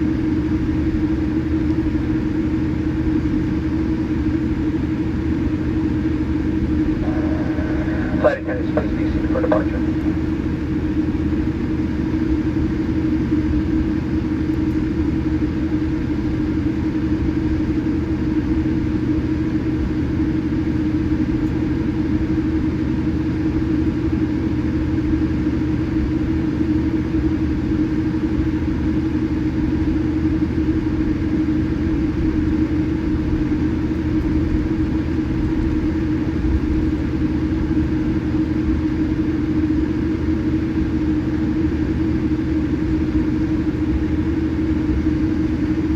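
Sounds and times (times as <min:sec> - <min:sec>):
aircraft cabin hum: 0:06.3 - 0:13.7.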